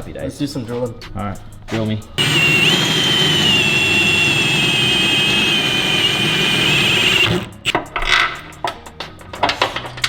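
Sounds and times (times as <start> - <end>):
power drill boring into steel: 2.2 - 7.8.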